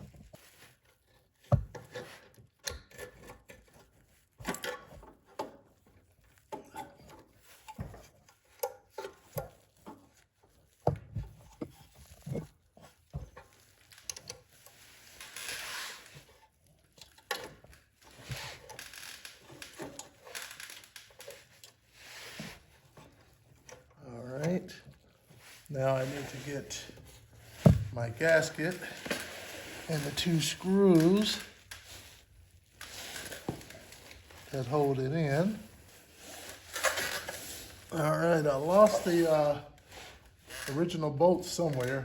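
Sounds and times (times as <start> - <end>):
small clicks and knocks of tools: 1.4 - 12.5, 13.1 - 15.4, 16.2 - 21.8
rustling: 5.7 - 40.6.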